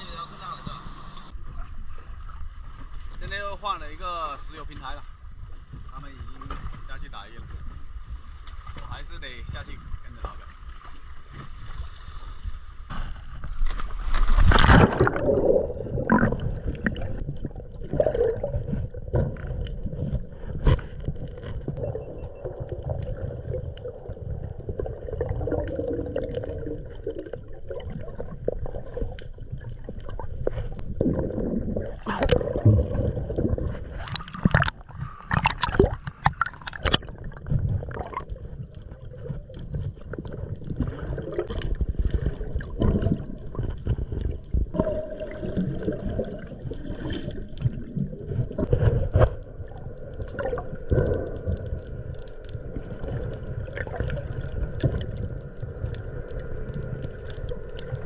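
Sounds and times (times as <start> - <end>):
underwater gurgling and bubbling: 14.3 - 58.0.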